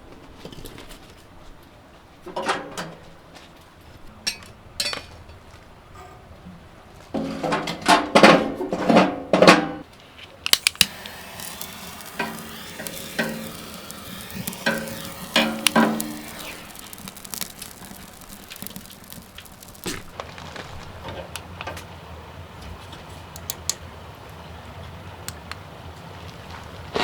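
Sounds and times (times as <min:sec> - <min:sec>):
utensil clicks: 0:10.6 - 0:20.1
food sizzling in a hot pan: 0:10.6 - 0:20.2
utensils scraping in a pan: 0:10.8 - 0:20.1.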